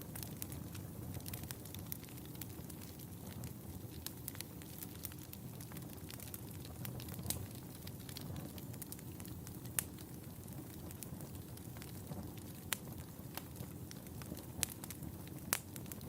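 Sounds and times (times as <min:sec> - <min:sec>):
wood fire crackling: 0:00.0 - 0:16.0
sharp pops of burning wood: 0:00.1 - 0:16.0.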